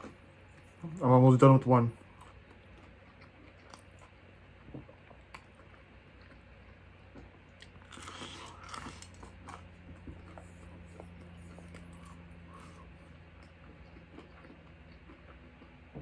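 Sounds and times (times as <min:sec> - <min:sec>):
person chewing: 0:02.0 - 0:16.0
crunching bite: 0:05.1 - 0:10.4.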